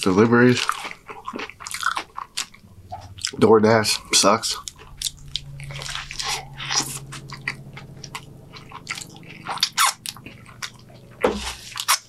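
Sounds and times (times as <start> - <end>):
man chewing with clicks and smacks: 0.0 - 3.4.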